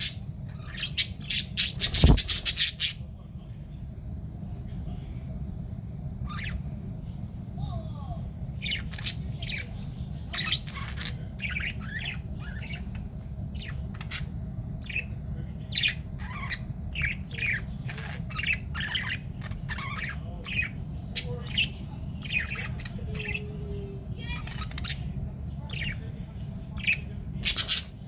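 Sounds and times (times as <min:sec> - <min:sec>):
budgerigars squawking: 0:00.0 - 0:03.0, 0:15.7 - 0:23.5, 0:26.8 - 0:28.0
steady low hum: 0:00.0 - 0:28.0.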